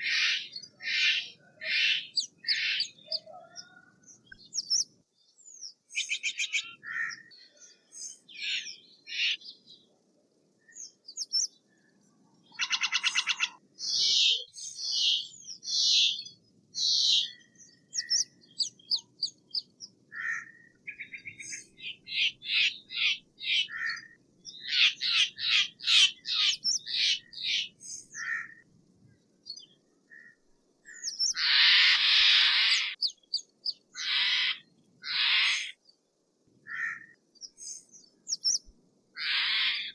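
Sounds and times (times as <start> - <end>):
jay calling: 31.2 - 33.1, 34.0 - 35.7
bird harsh screech: 31.4 - 33.0.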